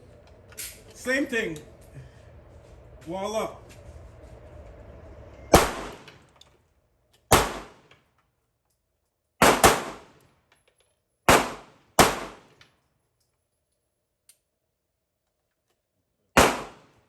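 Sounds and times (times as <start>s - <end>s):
handgun shots with echo: 5.6s - 6.1s, 7.3s - 7.9s, 9.4s - 10.2s, 11.3s - 12.6s, 16.4s - 16.9s.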